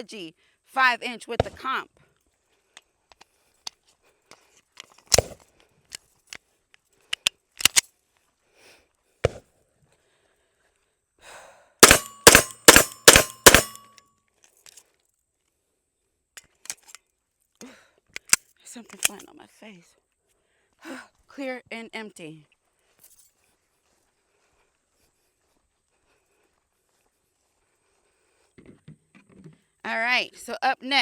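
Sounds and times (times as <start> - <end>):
metallic gun handling clicks: 7.1 - 7.9, 11.8 - 14.8, 16.4 - 17.0, 18.2 - 19.3
pistol shots: 11.8 - 13.8.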